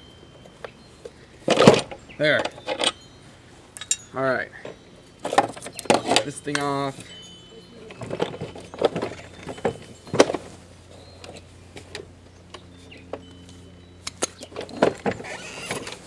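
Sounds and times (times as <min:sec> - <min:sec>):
metal tools clicking and knocking: 0:01.5 - 0:03.0, 0:03.8 - 0:07.2.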